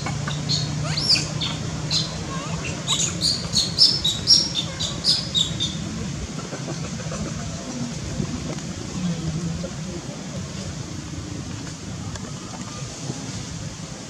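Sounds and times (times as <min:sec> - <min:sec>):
birds chirping: 0:00.0 - 0:06.9.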